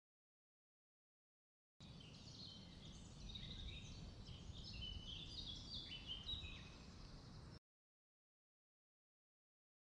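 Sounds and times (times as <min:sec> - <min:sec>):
low steady background rumble: 0:01.8 - 0:07.6
small birds chirping and trilling: 0:01.8 - 0:07.6.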